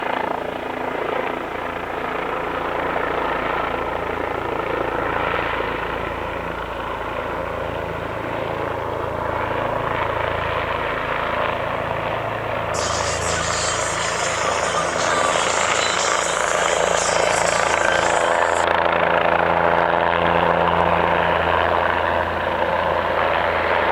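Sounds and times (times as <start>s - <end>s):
helicopter rotor and turbine: 0.1s - 23.9s
high hiss: 12.8s - 18.6s.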